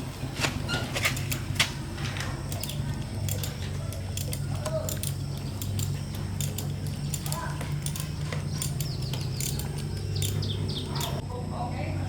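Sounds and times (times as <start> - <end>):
steady low hum: 0.0 - 12.0
bird chirps: 5.2 - 11.2.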